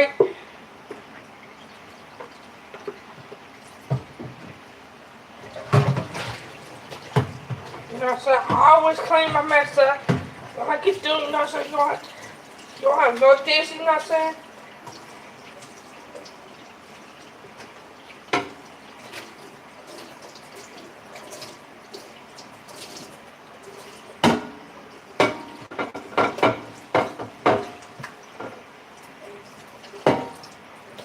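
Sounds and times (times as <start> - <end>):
tap water running into sink: 0.8 - 4.7, 5.4 - 31.0
dishes clinking: 25.2 - 27.8.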